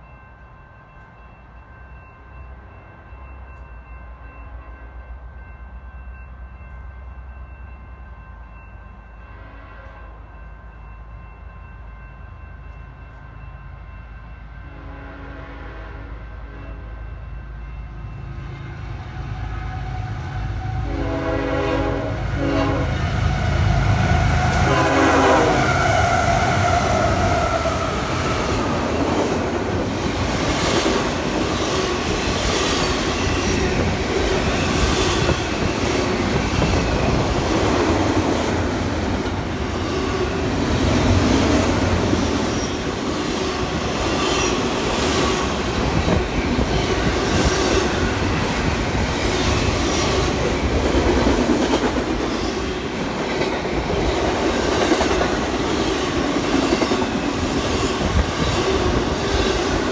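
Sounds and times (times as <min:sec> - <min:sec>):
train horn blasts: 0:09.3 - 0:10.2, 0:14.6 - 0:17.1, 0:19.0 - 0:28.1
train wheels rumbling and clacking: 0:20.2 - 0:59.9.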